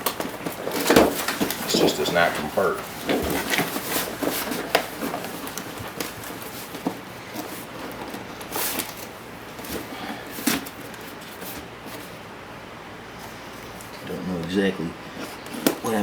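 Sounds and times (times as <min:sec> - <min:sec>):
packaging rustling: 0:00.0 - 0:12.2
packaging clicks and knocks: 0:03.0 - 0:11.1.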